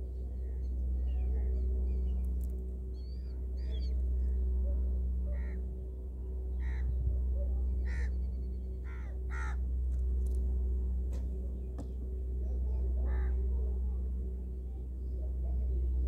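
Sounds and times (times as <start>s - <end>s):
steady low hum: 0.0s - 16.0s
harsh caw-like bird calls: 5.3s - 5.6s, 6.6s - 6.9s, 7.8s - 8.2s, 8.8s - 9.6s, 13.0s - 13.4s.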